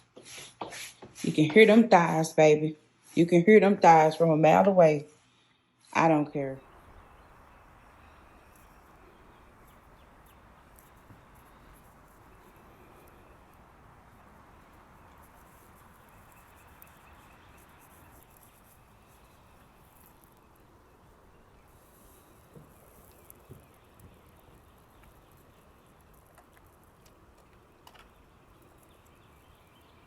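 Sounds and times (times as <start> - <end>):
outdoor background hush: 0.0 - 30.0.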